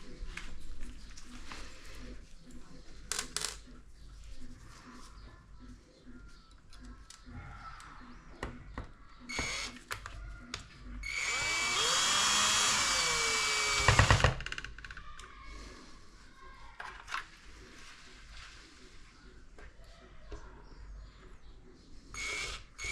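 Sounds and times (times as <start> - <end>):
power screwdriver running: 9.3 - 9.7, 11.0 - 14.2, 22.2 - 22.9.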